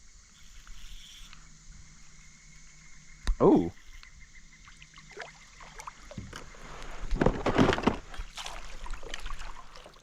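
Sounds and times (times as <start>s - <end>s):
water splashing against kayak: 4.7s - 10.0s.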